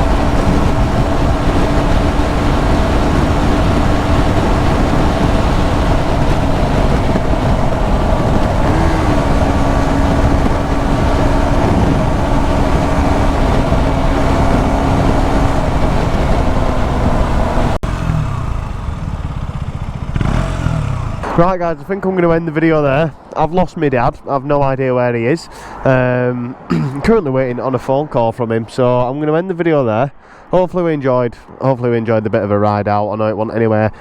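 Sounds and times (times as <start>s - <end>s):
motorcycle engine cruising: 0.0s - 21.6s
wind noise on microphone: 0.0s - 24.9s.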